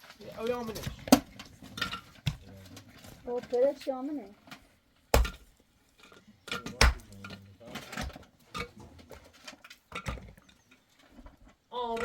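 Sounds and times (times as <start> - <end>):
sharp knocks: 5.2 - 5.5, 6.7 - 7.2.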